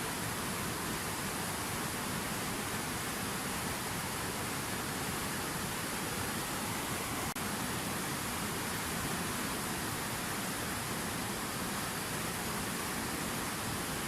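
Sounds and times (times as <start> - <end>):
fountain water splashing: 0.0 - 14.0.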